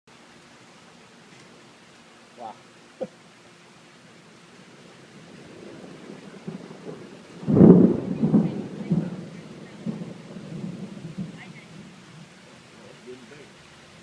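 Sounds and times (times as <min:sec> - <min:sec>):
thunder clap and rumbling: 0:04.7 - 0:12.4.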